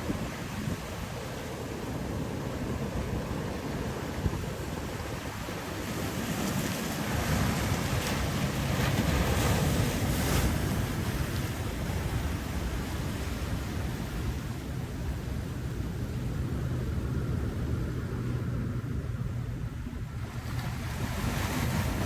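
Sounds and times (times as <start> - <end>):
ocean surf washing in: 0.0 - 22.0
wind rumbling on microphone: 0.0 - 22.0.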